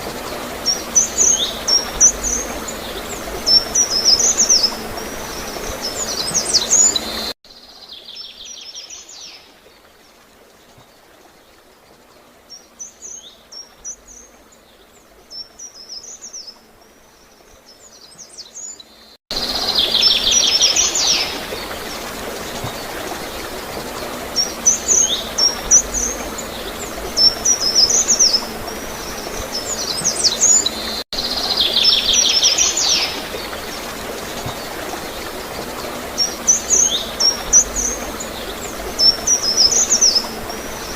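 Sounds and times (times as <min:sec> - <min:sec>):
gurgling running water: 0:00.0 - 0:07.4, 0:19.3 - 0:40.9
songbird singing: 0:00.0 - 0:09.9, 0:11.5 - 0:40.9.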